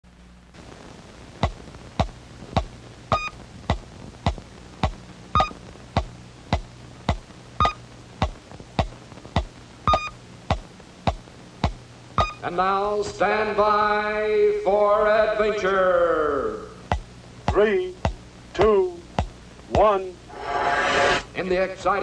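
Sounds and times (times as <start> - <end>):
faint steady low hum: 0.1 - 22.0
sharp electronic ticks: 1.4 - 12.4.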